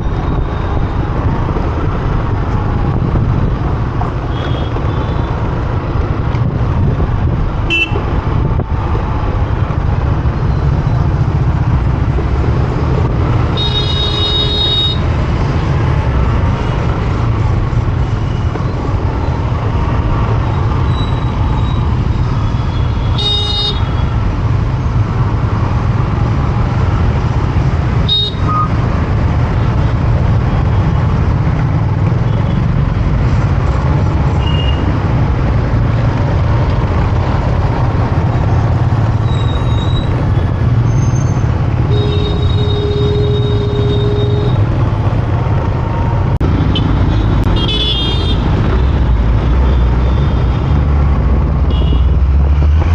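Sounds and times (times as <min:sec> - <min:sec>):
traffic rumble: 0:00.0 - 0:52.9
vehicle horns honking: 0:07.7 - 0:08.1, 0:13.5 - 0:15.0, 0:22.7 - 0:24.0, 0:28.1 - 0:28.7, 0:41.9 - 0:44.6, 0:46.6 - 0:48.5, 0:51.7 - 0:52.2.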